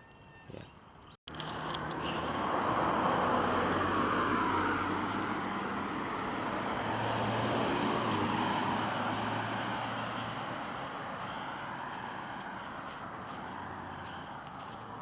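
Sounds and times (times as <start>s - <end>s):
road vehicle tyre and engine rush: 1.3s - 15.0s.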